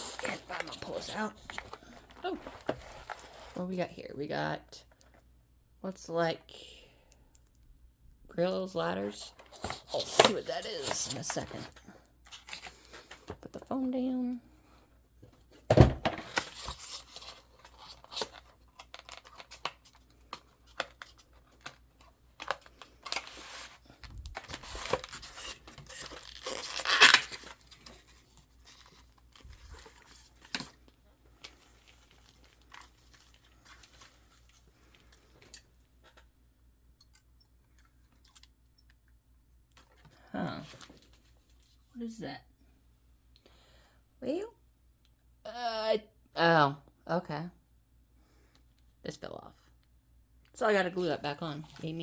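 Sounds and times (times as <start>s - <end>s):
packaging tearing and crinkling: 16.3s - 21.8s, 22.4s - 30.7s.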